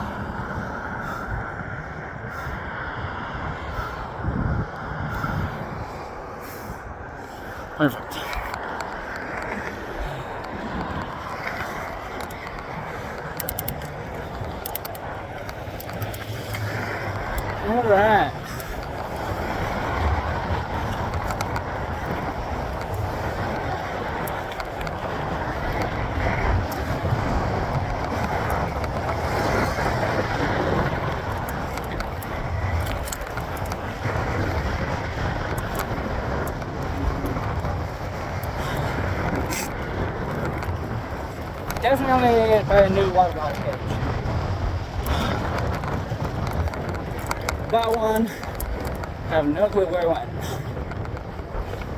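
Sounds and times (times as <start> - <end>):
bike clicking: 0.0 - 51.9
bike tyre and road noise: 0.0 - 51.9
passing traffic hum: 0.0 - 51.9
wind rushing over microphone: 0.0 - 51.9
quick clicks: 11.5 - 17.6.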